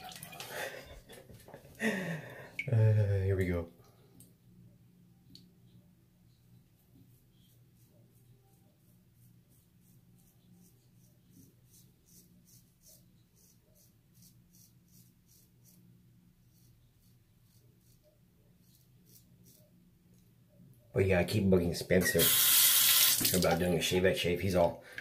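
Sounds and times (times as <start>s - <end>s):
low steady hum: 0.0s - 11.8s
razor scraping stubble: 9.2s - 15.8s, 16.4s - 19.7s.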